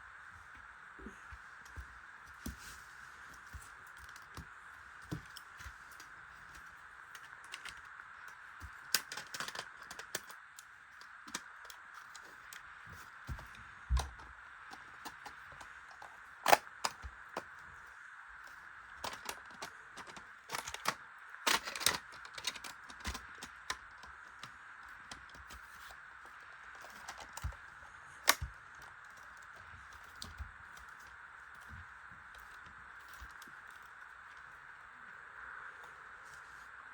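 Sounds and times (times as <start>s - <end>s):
plastic bricks clicking: 6.0s - 12.6s, 13.3s - 17.6s, 18.9s - 26.0s, 26.7s - 31.7s.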